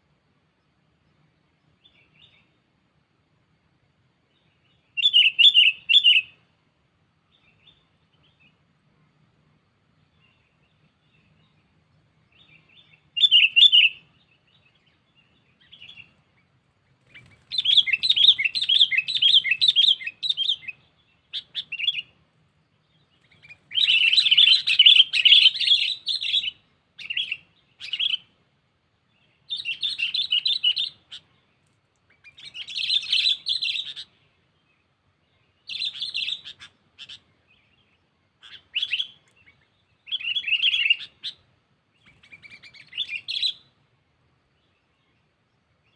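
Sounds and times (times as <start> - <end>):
bulbul chattering calls: 5.0 - 6.4, 12.3 - 22.2, 23.0 - 28.3, 29.2 - 31.4, 32.1 - 34.3, 35.5 - 41.4, 42.0 - 43.7.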